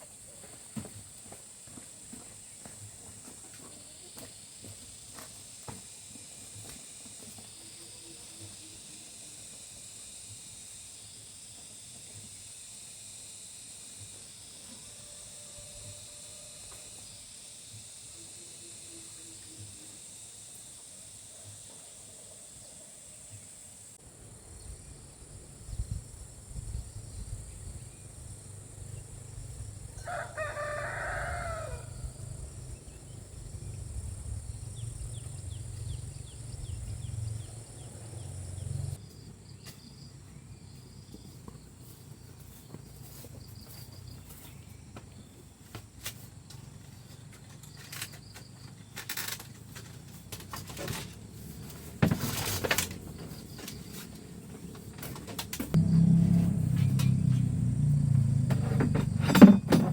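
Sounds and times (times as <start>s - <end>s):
rooster crowing: 14.8s - 16.8s, 30.0s - 32.4s
low rumble: 55.8s - 59.2s.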